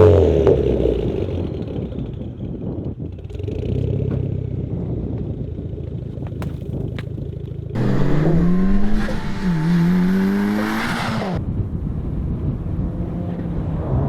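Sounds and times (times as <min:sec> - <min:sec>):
car engine revving: 0:07.8 - 0:11.4.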